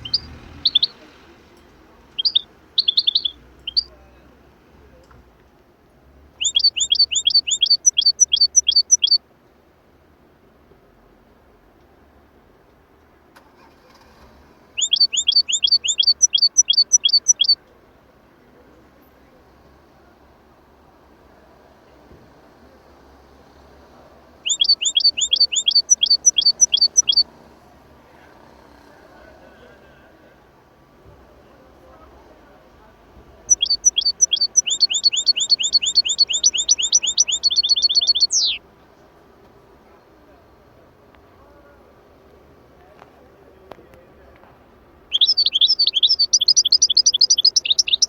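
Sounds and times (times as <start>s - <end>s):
songbird chirping: 0.0s - 5.2s, 6.3s - 9.3s, 14.7s - 17.8s, 24.3s - 27.3s, 33.1s - 38.6s, 45.1s - 48.0s.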